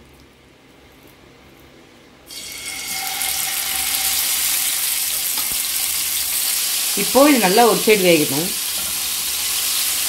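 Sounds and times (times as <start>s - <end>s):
chicken frying in hot oil: 2.3s - 10.0s.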